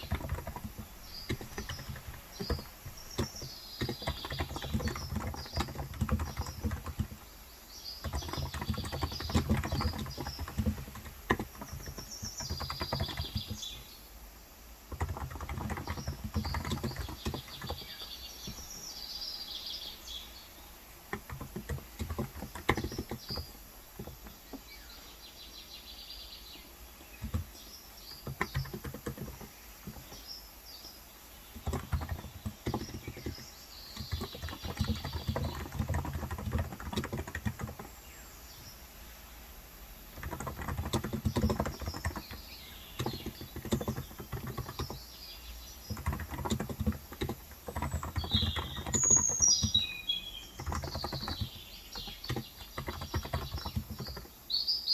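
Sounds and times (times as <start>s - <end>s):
keyboard typing clicks: 0.0s - 13.8s, 14.9s - 18.9s, 21.0s - 24.6s, 27.1s - 30.3s, 31.5s - 37.9s, 40.1s - 45.1s, 45.8s - 54.4s
birds chirping: 0.0s - 54.9s.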